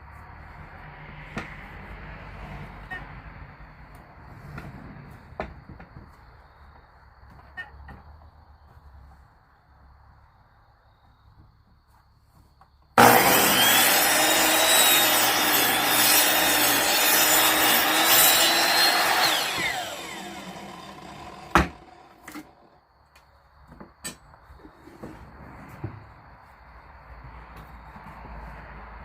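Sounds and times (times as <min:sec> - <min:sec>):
electric power saw cutting wood: 0:13.0 - 0:22.7.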